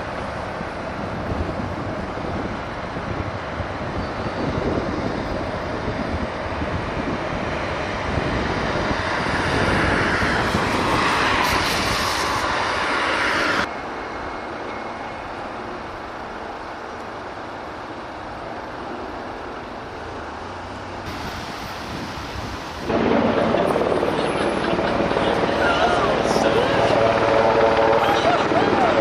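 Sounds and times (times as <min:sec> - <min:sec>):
aircraft engine noise: 0:00.0 - 0:13.7, 0:21.1 - 0:29.0.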